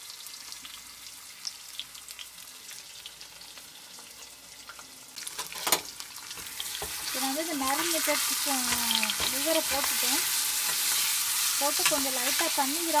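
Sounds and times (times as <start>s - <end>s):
meat sizzling in oil: 0.0s - 13.0s.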